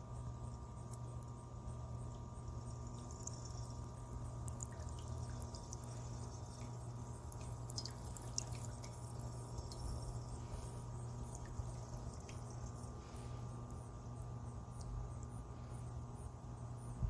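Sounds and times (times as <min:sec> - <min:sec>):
steady low hum: 0:00.0 - 0:17.0
water dripping into basin: 0:00.4 - 0:13.0, 0:14.7 - 0:15.4.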